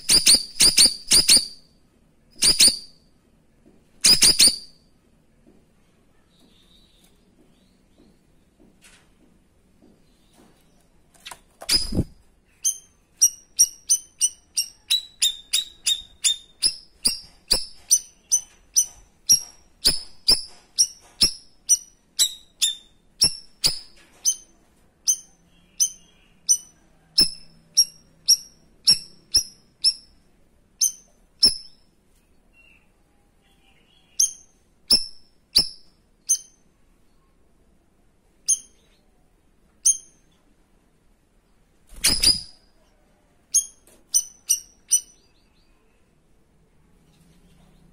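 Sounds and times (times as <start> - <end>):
bird sharp high chirps: 0.0 - 1.7, 2.3 - 3.1, 4.0 - 4.8, 11.2 - 30.2, 30.8 - 31.9, 33.5 - 36.6, 38.4 - 39.1, 39.8 - 40.4, 41.9 - 42.7, 43.5 - 45.9.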